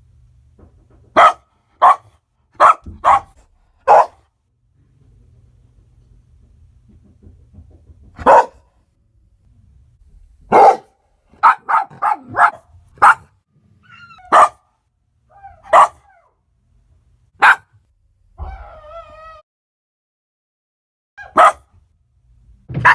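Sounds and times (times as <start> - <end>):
dog barking: 1.2 - 4.3, 8.2 - 8.7, 10.5 - 13.4, 14.2 - 14.7, 15.5 - 16.2, 17.4 - 17.8, 21.2 - 21.7
dog whining: 13.8 - 14.6, 15.3 - 16.3, 18.4 - 19.4.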